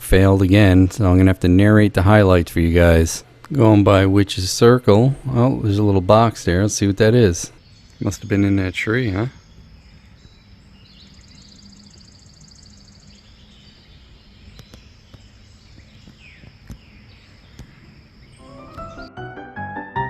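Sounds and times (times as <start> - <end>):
faint bird chirp: 4.6 - 19.1
insects buzzing: 4.6 - 19.1
rapid pulsing insect trill: 8.8 - 18.4
piano music: 18.4 - 20.0.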